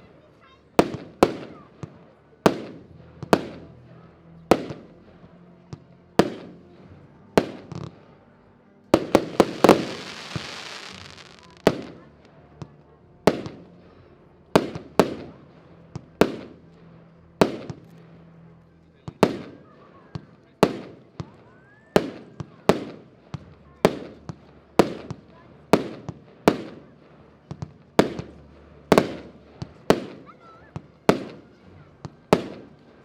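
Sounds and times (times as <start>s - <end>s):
firework bangs: 9.0s - 12.0s
firework hiss: 9.2s - 11.6s.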